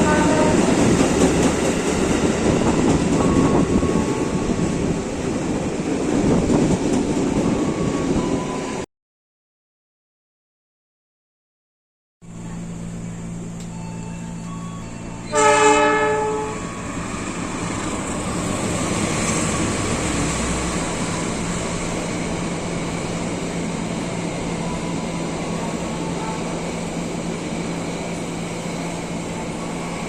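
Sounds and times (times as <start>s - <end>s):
train horn blast: 0.0s - 0.9s, 15.2s - 16.9s
train running on rails: 0.0s - 8.9s, 12.2s - 30.0s.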